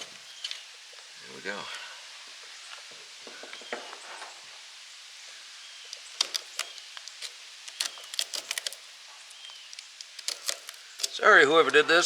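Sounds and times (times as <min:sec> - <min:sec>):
motor windings snapping apart: 0:05.9 - 0:11.2.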